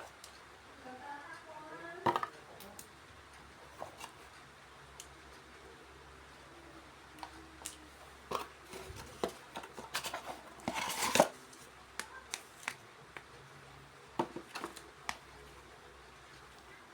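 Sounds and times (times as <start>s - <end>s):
rustling scrape: 8.3s - 11.7s.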